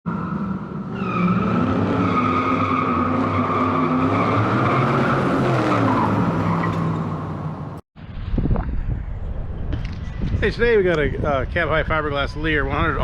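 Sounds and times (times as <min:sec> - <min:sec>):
high-pitched tire squeal: 0:00.1 - 0:07.6
car engine revving: 0:00.1 - 0:07.8.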